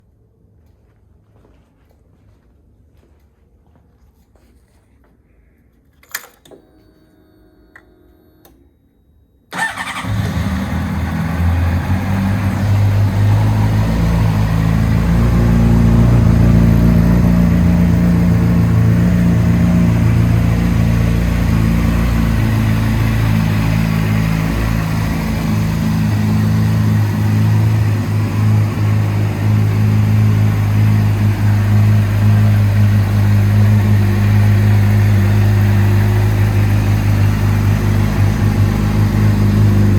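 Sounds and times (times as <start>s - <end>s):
motorcycle engine starting and idling: 9.5s - 39.9s.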